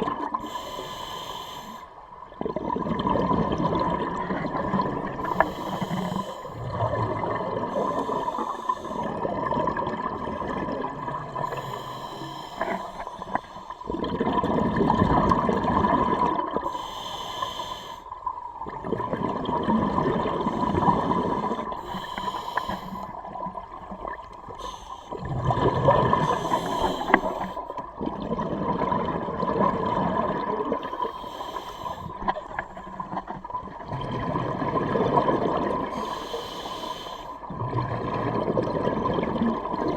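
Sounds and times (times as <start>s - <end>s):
regulator inhale hiss: 0.4s - 2.0s, 5.2s - 6.6s, 7.7s - 9.1s, 11.4s - 13.9s, 16.6s - 18.2s, 20.7s - 23.3s, 24.5s - 25.2s, 26.2s - 27.8s, 30.9s - 33.0s, 35.9s - 37.5s
exhaled bubbles rushing: 2.2s - 11.9s, 12.6s - 16.7s, 18.4s - 21.9s, 23.0s - 31.1s, 31.9s - 36.1s, 37.4s - 39.9s.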